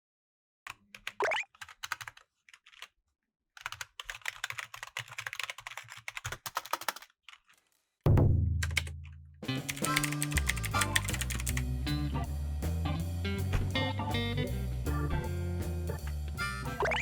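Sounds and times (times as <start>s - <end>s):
fast typing on keyboard: 0.7s - 2.9s, 3.6s - 7.7s, 8.6s - 8.9s, 9.7s - 11.6s.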